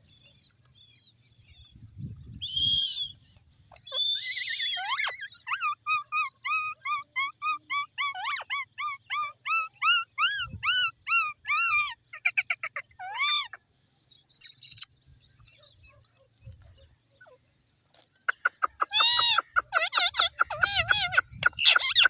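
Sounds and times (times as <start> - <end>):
parrot chirping and calling: 3.7 - 13.6, 14.4 - 14.9, 18.3 - 22.0.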